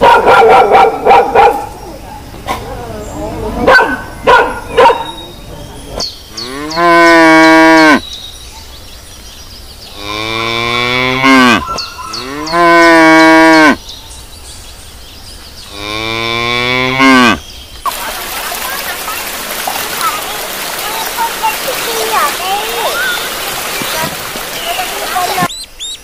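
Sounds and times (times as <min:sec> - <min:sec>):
cows mooing: 0:02.3 - 0:08.0, 0:10.0 - 0:13.8, 0:15.7 - 0:17.4.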